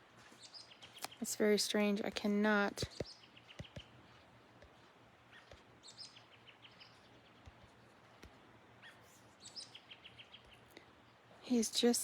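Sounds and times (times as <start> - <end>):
bird chirps: 0.4 - 1.4, 2.8 - 8.0, 8.8 - 11.2.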